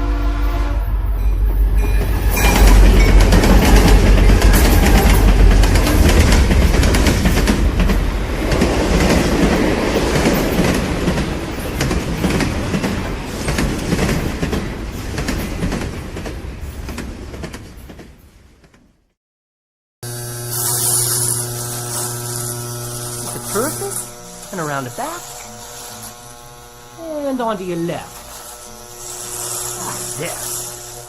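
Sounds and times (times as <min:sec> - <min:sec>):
train wheels clattering over rails: 0:01.9 - 0:18.8.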